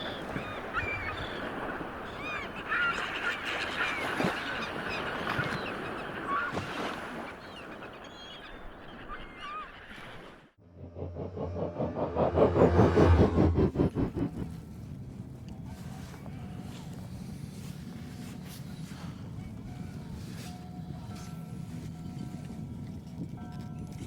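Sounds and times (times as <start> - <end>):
rush of wind or water: 0.0 - 7.7.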